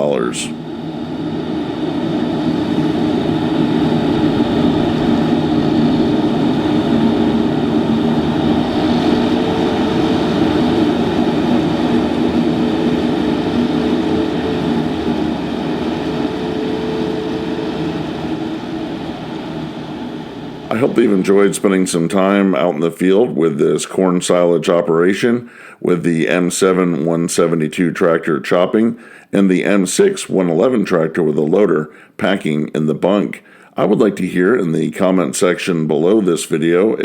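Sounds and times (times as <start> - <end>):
farm machinery running: 0.0 - 22.2
tractor diesel engine drone: 0.0 - 37.0.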